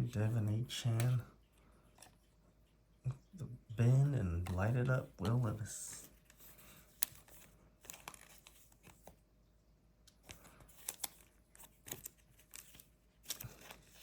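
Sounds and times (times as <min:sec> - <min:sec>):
cards clicking and tapping: 0:04.0 - 0:09.2.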